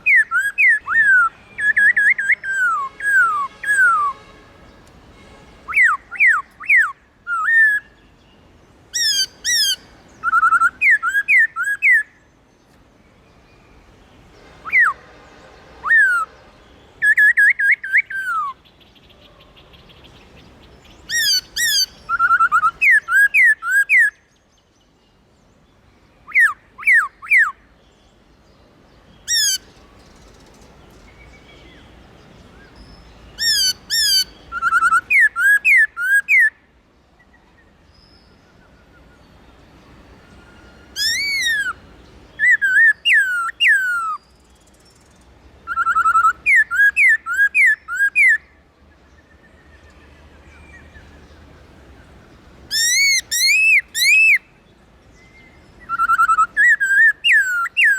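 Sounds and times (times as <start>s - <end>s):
bird singing whistled phrases: 0.0s - 4.3s, 5.7s - 8.0s, 9.0s - 12.2s, 17.0s - 18.8s, 21.1s - 24.3s, 26.2s - 27.6s, 33.4s - 36.6s, 40.8s - 41.8s, 42.4s - 45.1s, 45.7s - 48.6s, 52.7s - 54.5s, 55.2s - 57.9s.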